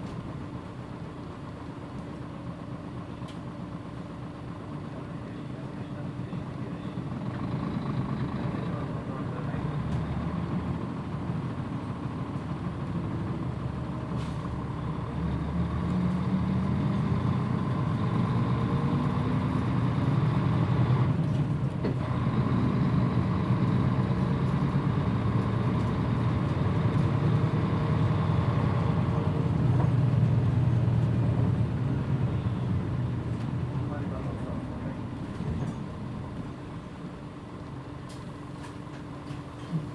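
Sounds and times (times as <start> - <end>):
bus diesel engine pulling away: 0.0 - 39.9.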